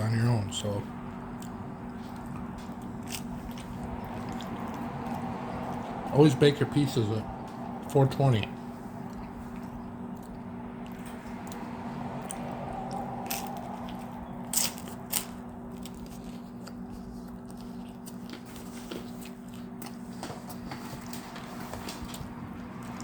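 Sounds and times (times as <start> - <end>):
person chewing crispy pizza: 0.0 - 23.0
steady low hum: 0.0 - 23.0
sharp crunches: 13.3 - 20.0.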